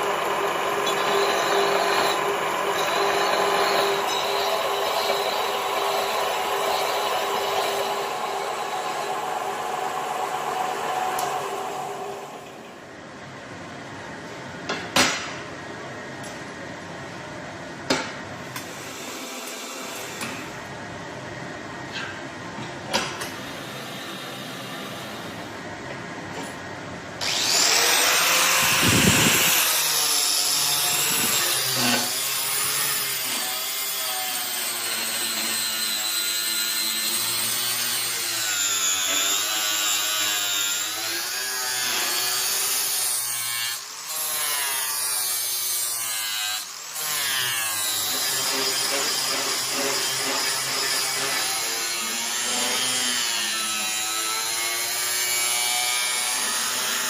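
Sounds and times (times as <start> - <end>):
power tool grinding whine: 0.0 - 12.5, 27.2 - 57.0
shop noise: 0.0 - 57.0.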